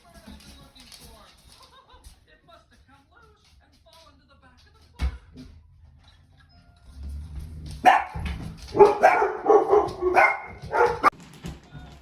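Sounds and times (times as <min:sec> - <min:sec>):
puppy barking: 0:07.8 - 0:11.2.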